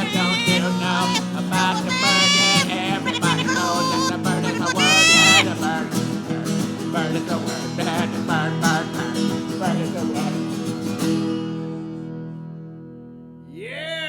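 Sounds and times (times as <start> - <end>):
parrot calling: 0.0 - 5.5
acoustic guitar strumming: 0.0 - 13.5.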